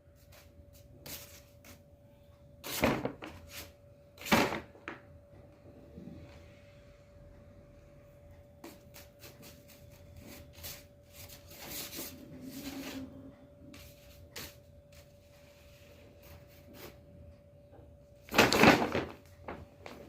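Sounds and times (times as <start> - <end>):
faint steady hum: 0.0 - 20.0
paper bag rustling and crinkling: 18.3 - 20.0.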